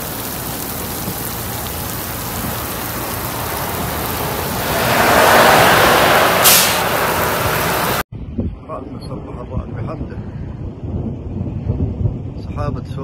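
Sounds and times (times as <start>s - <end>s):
heavy rain on standing water: 0.0s - 8.0s.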